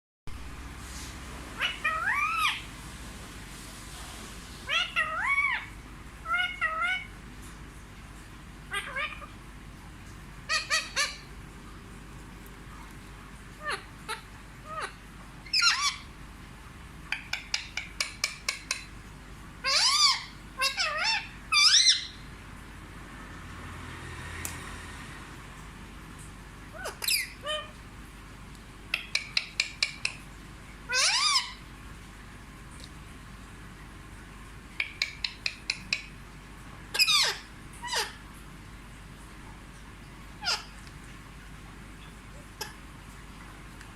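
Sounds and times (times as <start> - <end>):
parrot talk-like vocalising: 1.6 - 2.7, 4.6 - 7.2, 8.7 - 9.4, 10.5 - 11.3, 13.5 - 16.1, 19.6 - 22.2, 26.6 - 27.8, 28.9 - 30.2, 30.9 - 31.6, 34.8 - 36.1, 36.9 - 38.2, 40.4 - 40.8.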